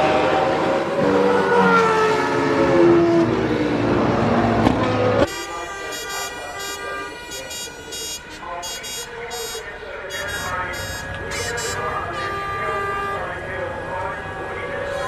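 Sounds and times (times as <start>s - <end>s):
racing car engine: 0.0s - 8.6s
horn-like tones: 0.0s - 15.0s.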